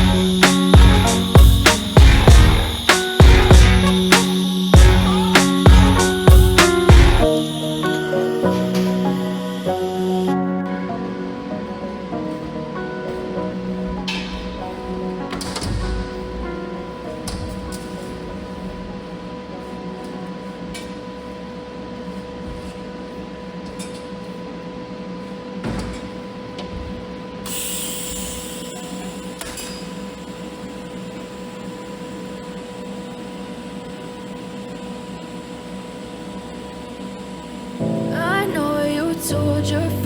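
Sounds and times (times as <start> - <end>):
welding arc buzzing hiss: 0.0 - 10.4, 27.4 - 37.8
electrical hum: 0.0 - 40.0.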